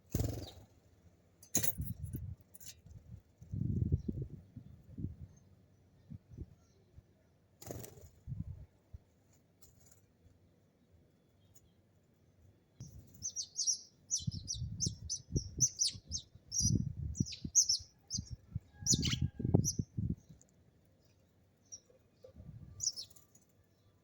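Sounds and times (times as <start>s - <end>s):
sparrows chirping: 0.0s - 0.7s, 12.8s - 24.0s.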